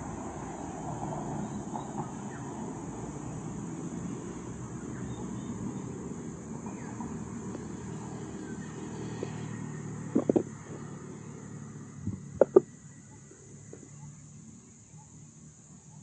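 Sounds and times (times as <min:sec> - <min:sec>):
sharp clicks or knocks: 0:10.1 - 0:10.5, 0:12.1 - 0:12.7.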